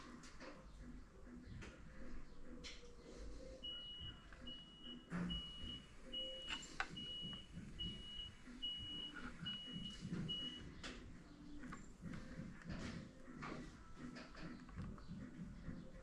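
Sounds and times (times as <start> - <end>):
high electronic beeps: 3.6 - 10.8
clicks: 6.4 - 8.1.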